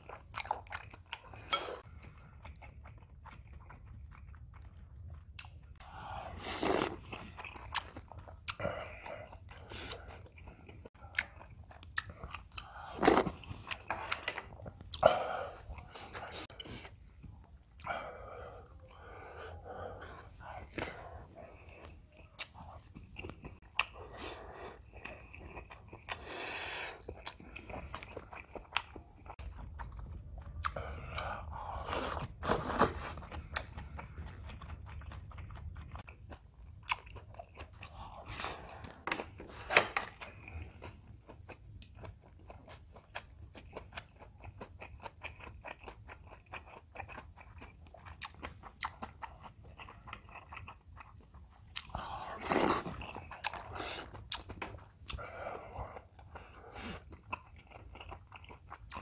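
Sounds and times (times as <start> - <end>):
person chewing with wet mouth sounds: 0.0 - 59.0.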